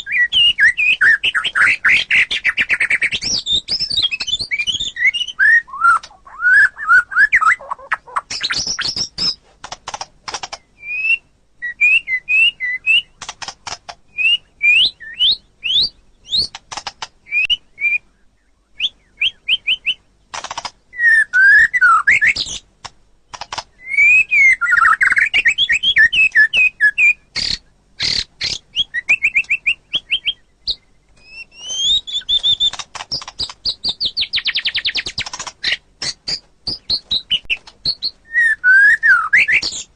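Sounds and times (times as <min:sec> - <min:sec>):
bird singing whistles: 0:00.0 - 0:09.4, 0:10.7 - 0:13.2, 0:14.1 - 0:16.6, 0:17.2 - 0:20.1, 0:20.9 - 0:22.6, 0:23.8 - 0:39.9
bird clicking chatter: 0:07.4 - 0:10.7, 0:13.2 - 0:14.0, 0:16.3 - 0:17.2, 0:20.3 - 0:20.8, 0:22.2 - 0:23.8, 0:31.2 - 0:38.2.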